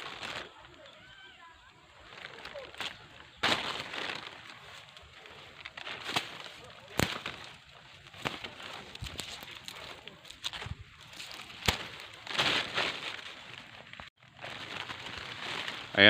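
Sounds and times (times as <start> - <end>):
leaves and stems rustling: 0.0 - 16.0
bean pods snapping: 2.4 - 14.1.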